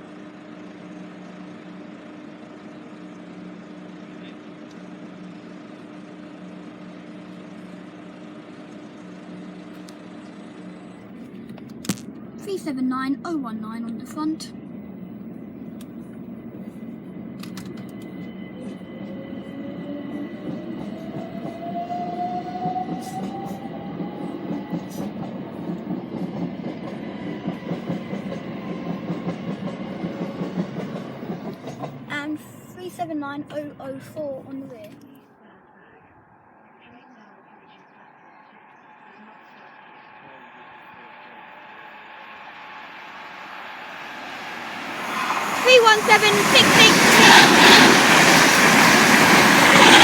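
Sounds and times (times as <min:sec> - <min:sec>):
train wheels rumbling on rail: 0:00.0 - 0:35.0, 0:39.8 - 0:50.0
faint rising whine: 0:36.2 - 0:50.0
even rushing noise: 0:41.6 - 0:50.0.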